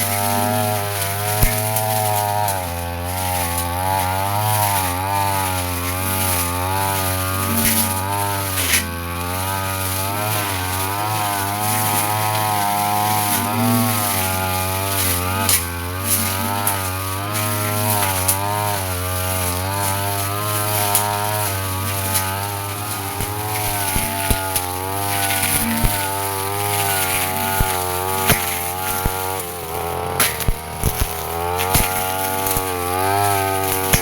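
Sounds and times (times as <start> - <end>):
brush cutter engine running: 0.0 - 34.0
cut material ticking: 0.4 - 2.7, 10.3 - 34.0.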